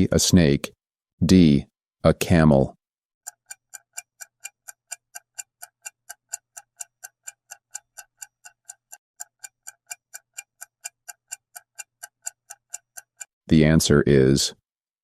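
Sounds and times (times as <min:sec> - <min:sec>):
clock ticking: 0:03.2 - 0:13.8.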